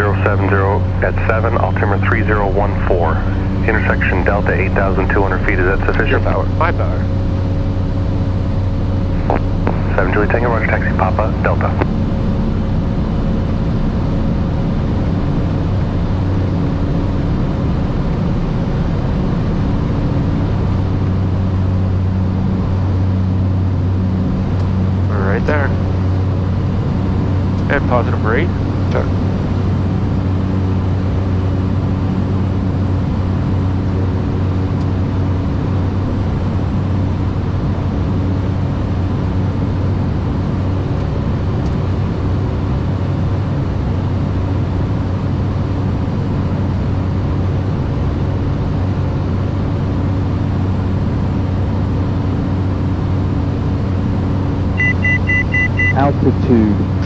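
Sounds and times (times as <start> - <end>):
turboprop engine drone: 0.0 - 57.0.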